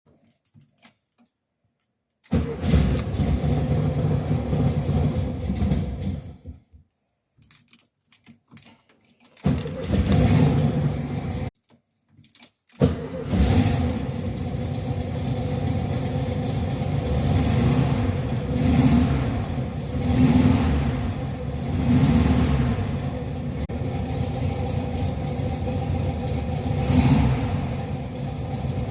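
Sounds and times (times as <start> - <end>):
car engine starting and running: 2.3 - 6.5, 9.4 - 11.5, 12.8 - 28.9.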